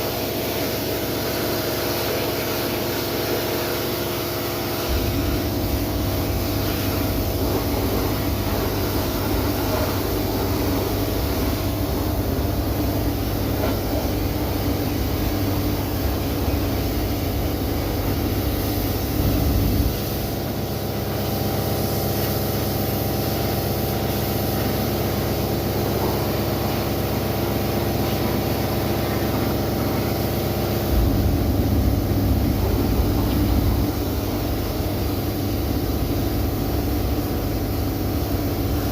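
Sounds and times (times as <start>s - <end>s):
pressure washer running: 0.0s - 38.9s.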